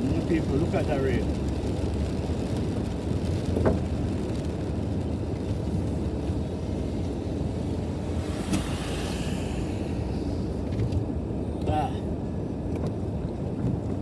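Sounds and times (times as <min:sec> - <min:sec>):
low vehicle rumble: 0:00.0 - 0:14.0
rain: 0:00.0 - 0:14.0
brief hiss: 0:08.0 - 0:11.0.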